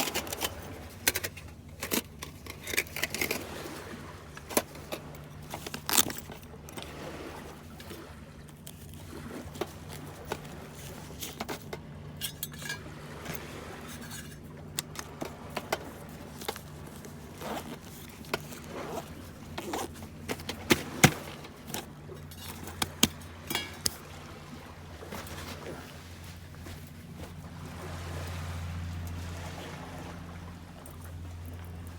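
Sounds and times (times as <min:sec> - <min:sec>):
light clinks and rattles: 0:00.0 - 0:07.0, 0:07.6 - 0:24.1
low engine-like hum: 0:00.0 - 0:31.9.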